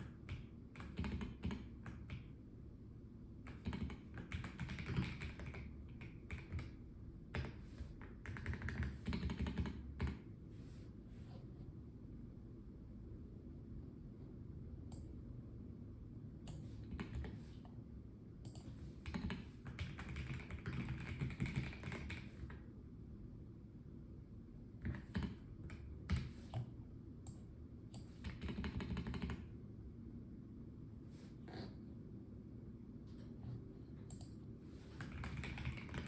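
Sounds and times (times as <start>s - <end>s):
mechanical keyboard typing: 0.0s - 2.3s, 3.5s - 10.2s, 16.5s - 17.4s, 18.5s - 22.6s, 24.8s - 26.3s, 28.0s - 29.5s, 35.0s - 36.0s.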